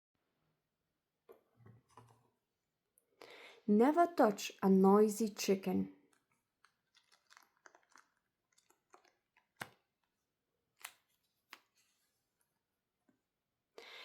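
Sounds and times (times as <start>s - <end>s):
book page turning: 6.6s - 9.8s.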